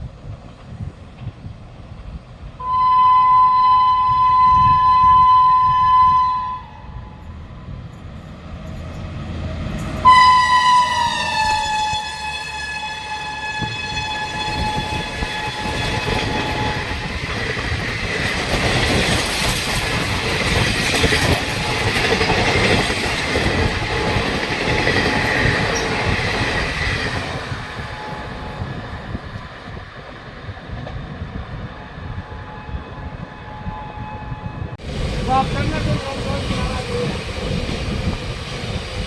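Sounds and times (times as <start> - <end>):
train horn: 2.6 - 7.4, 9.7 - 17.1, 27.8 - 28.8, 32.1 - 34.8
train coaches clattering over rails: 7.3 - 12.3, 13.2 - 31.6, 34.8 - 39.0.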